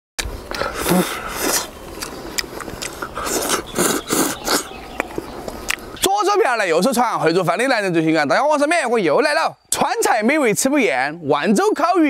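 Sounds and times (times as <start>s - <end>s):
man biting and chewing: 0.2s - 5.9s
teeth and lip clicks: 0.2s - 5.9s.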